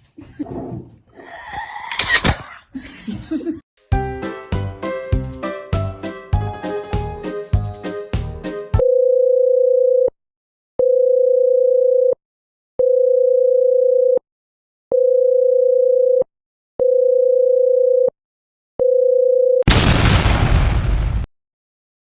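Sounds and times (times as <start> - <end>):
explosion-like burst: 19.7 - 21.3.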